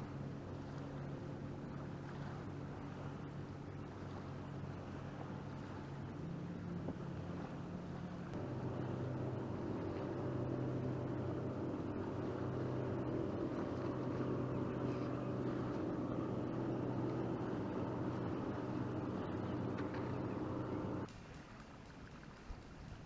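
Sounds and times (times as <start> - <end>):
motorboat engine humming: 0.0 - 21.1.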